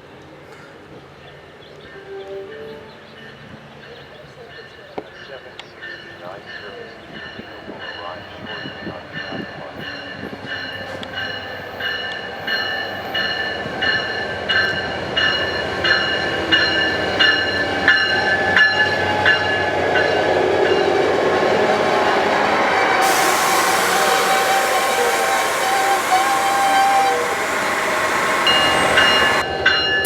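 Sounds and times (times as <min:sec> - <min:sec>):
train bell ringing: 0:02.5 - 0:30.0
train rumble: 0:03.2 - 0:29.7
loud hiss: 0:20.8 - 0:29.4.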